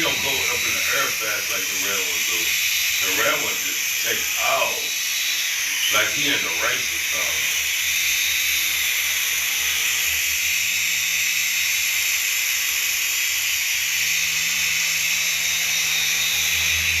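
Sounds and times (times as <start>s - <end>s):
toy helicopter rotor whirring: 0.0s - 17.0s.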